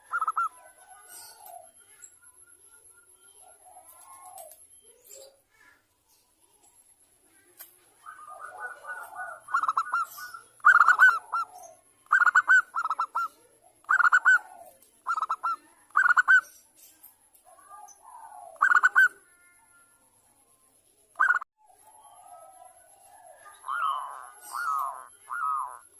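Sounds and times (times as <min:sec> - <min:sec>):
dove cooing: 0:00.0 - 0:02.0, 0:03.3 - 0:04.6, 0:07.4 - 0:16.5, 0:17.5 - 0:19.5, 0:21.2 - 0:25.9.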